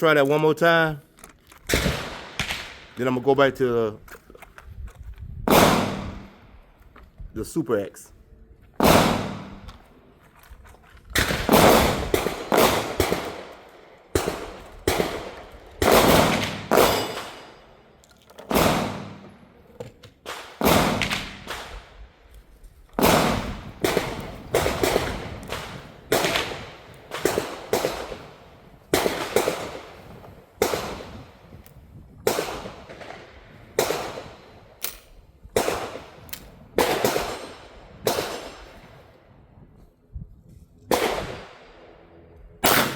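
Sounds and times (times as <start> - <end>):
gunshots with echo: 5.5 - 6.5, 8.8 - 9.8, 14.2 - 17.7, 18.5 - 19.5, 20.3 - 21.9, 23.0 - 31.2, 42.6 - 42.9.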